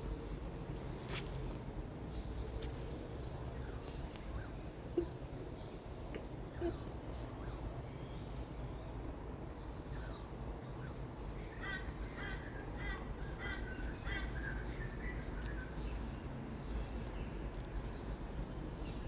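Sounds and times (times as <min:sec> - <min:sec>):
bird harsh calls: 0:10.8 - 0:15.8.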